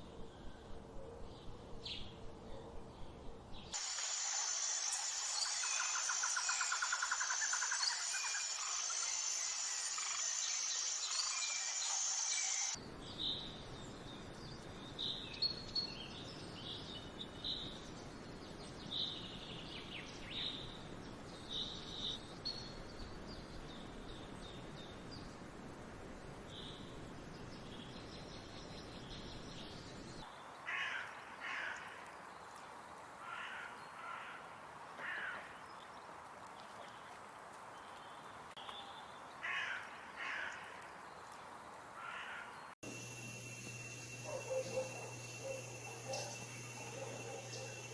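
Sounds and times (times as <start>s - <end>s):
harsh caw-like bird calls: 30.6s - 32.0s, 33.2s - 35.6s, 39.4s - 40.8s, 42.0s - 43.2s
high steady buzz: 42.8s - 47.9s.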